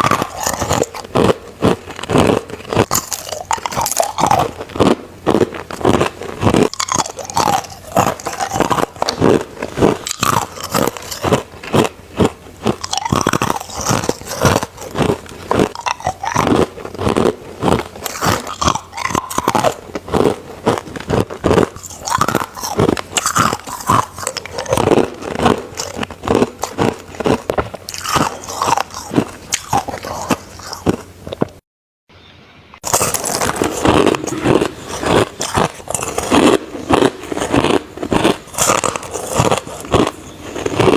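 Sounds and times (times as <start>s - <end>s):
crunching ice with teeth: 0.0s - 31.6s, 32.8s - 40.9s.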